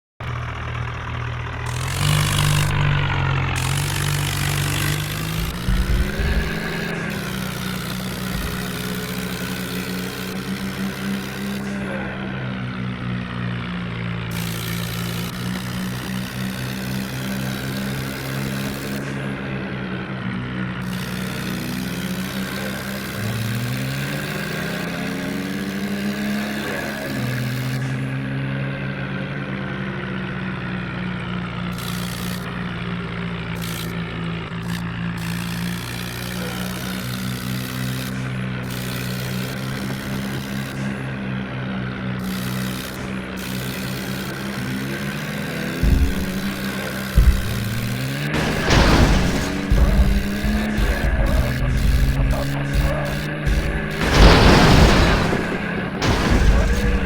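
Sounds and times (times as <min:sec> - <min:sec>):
diesel engine revving under load: 0:00.2 - 0:57.0
heavy low thumps: 0:02.6 - 0:09.2, 0:45.8 - 0:57.0.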